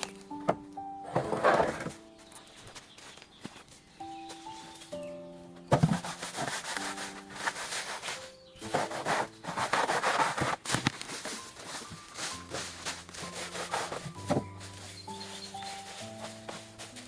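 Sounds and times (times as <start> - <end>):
soft background music: 0.0 - 17.0
hand tool rasping on wood: 5.8 - 17.0.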